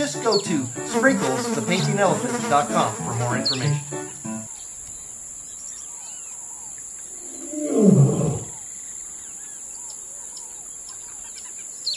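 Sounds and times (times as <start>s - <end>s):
bird chirps: 0.0s - 0.9s, 3.4s - 7.6s
insect drone: 0.0s - 11.9s
animal roar: 7.2s - 8.6s.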